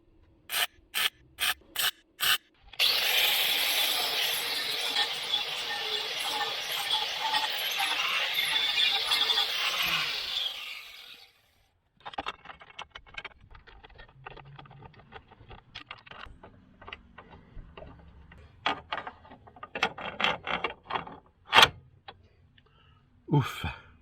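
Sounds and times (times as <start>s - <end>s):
hand tools and metal parts clicking: 12.0s - 22.2s.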